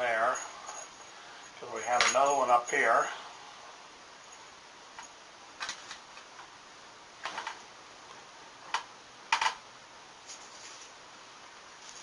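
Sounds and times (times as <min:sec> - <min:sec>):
soft rustle: 0:10.2 - 0:11.1, 0:11.7 - 0:12.0.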